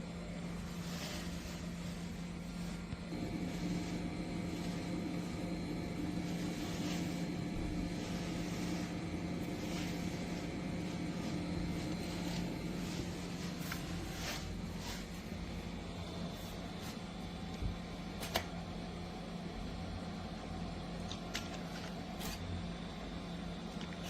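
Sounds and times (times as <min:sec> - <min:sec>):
electric motor humming: 0:02.6 - 0:14.8.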